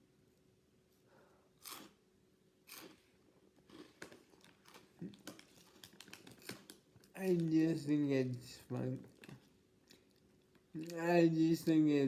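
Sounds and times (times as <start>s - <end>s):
crackers being chewed: 1.6s - 2.0s, 2.7s - 7.6s, 8.6s - 11.0s.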